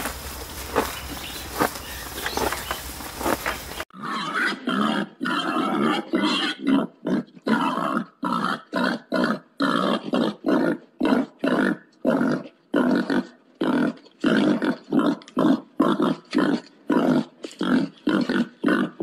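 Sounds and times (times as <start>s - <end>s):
outdoor background noise: 0.0s - 19.0s
piglets calling: 0.7s - 6.8s.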